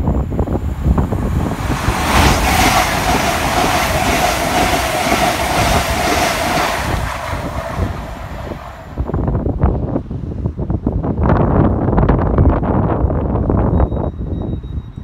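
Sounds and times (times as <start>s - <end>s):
train rushing past: 0.0s - 10.1s
steady train whine: 0.0s - 10.8s.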